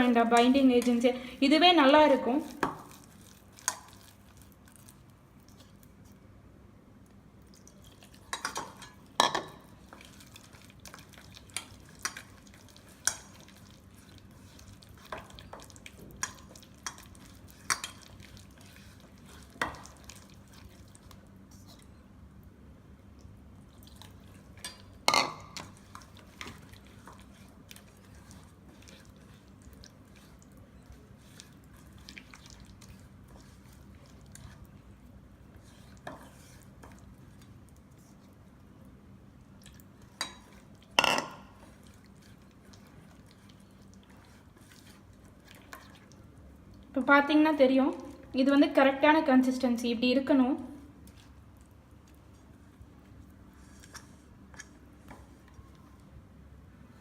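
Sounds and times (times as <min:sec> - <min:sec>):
spoon stirring thick paste: 0:00.0 - 0:05.9, 0:08.0 - 0:21.9, 0:23.9 - 0:38.5, 0:40.0 - 0:46.3.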